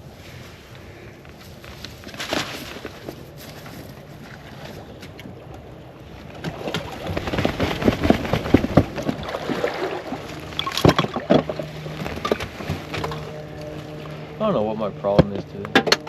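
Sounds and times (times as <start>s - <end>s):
low steady hum: 0.0s - 16.0s
irregular knocks and clatter: 6.2s - 14.1s.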